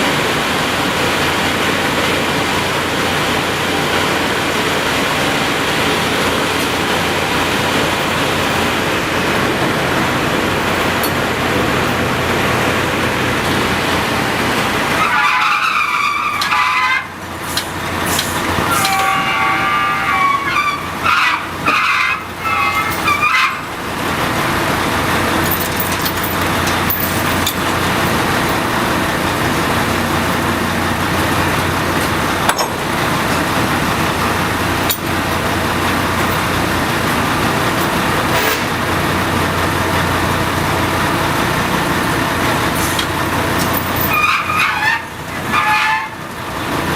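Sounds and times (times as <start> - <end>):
drilling machinery running: 0.0 - 46.9
high-pitched squeals: 14.9 - 23.8, 42.8 - 46.2.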